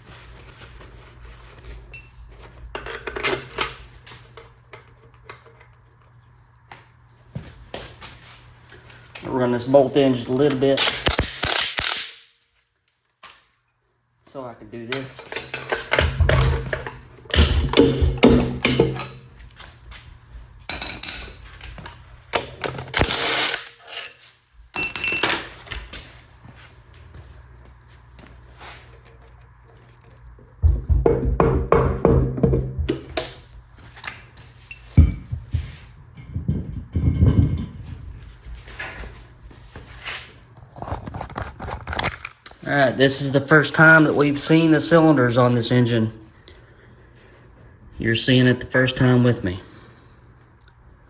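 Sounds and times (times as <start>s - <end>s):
metal tools clinking and clattering: 14.9s - 18.0s, 18.6s - 19.3s, 20.7s - 21.8s, 22.4s - 25.7s, 34.0s - 35.3s.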